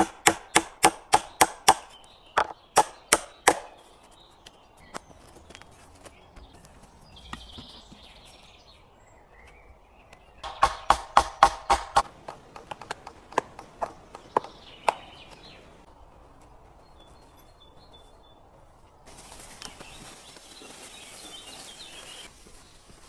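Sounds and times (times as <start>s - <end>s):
hard knocks on wood: 10.4s - 12.1s.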